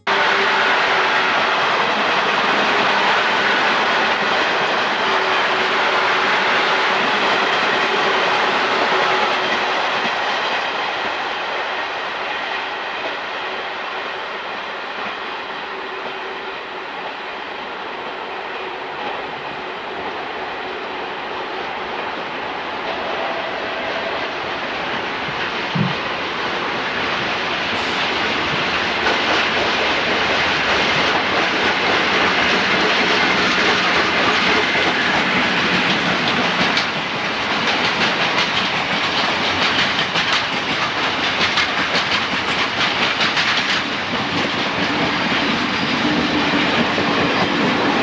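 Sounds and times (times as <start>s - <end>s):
train rumbling past: 0.0s - 48.0s
wheel clatter over rail joints: 22.8s - 48.0s.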